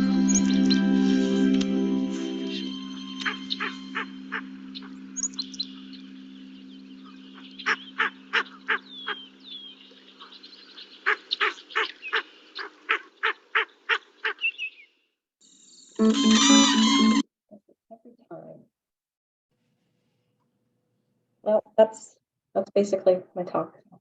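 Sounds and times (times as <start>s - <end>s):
low steady hum: 0.0s - 10.3s
birds honking calls: 0.0s - 14.8s, 16.0s - 17.2s
thin bird chirps: 2.4s - 16.0s.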